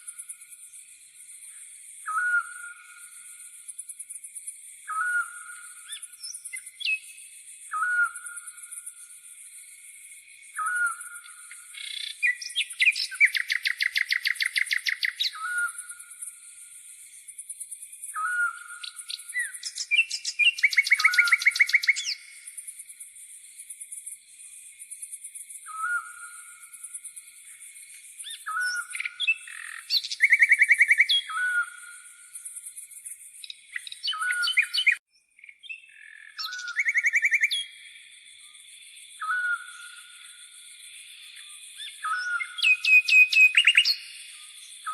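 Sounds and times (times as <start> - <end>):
songbird calls and trills: 0.0 - 44.9
grasshoppers chirring: 11.7 - 15.2.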